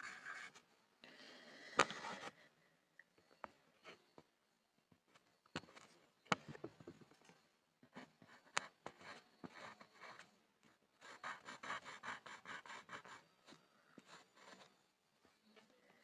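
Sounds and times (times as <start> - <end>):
pencil scribbling on a board: 11.0 - 14.7.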